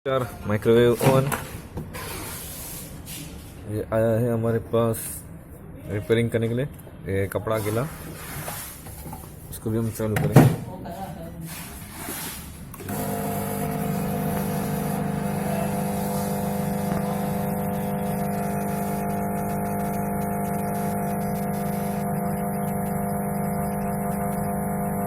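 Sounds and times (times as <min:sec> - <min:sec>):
microwave oven humming: 0:12.8 - 0:25.0.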